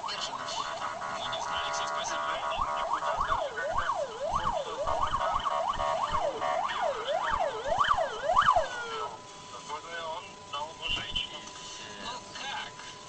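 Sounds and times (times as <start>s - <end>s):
siren yelping: 0.0s - 9.3s.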